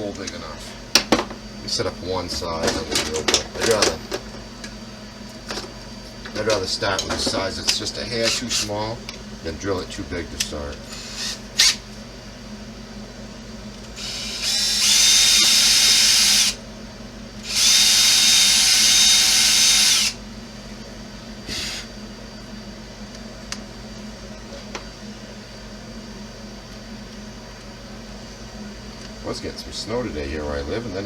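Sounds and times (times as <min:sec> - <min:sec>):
electric drill whining: 0:10.9 - 0:11.8, 0:14.0 - 0:16.6, 0:17.4 - 0:20.2, 0:21.4 - 0:21.9.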